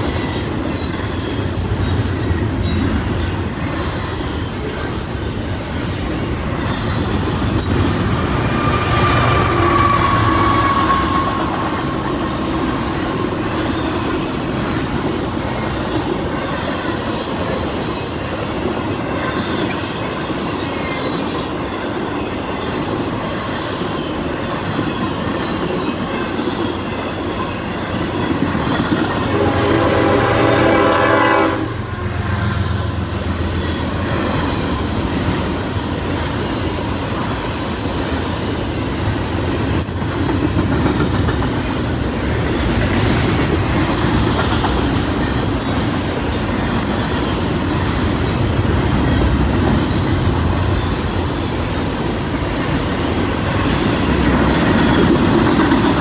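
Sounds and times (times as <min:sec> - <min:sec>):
train horn: 0:08.4 - 0:12.4, 0:29.1 - 0:33.1.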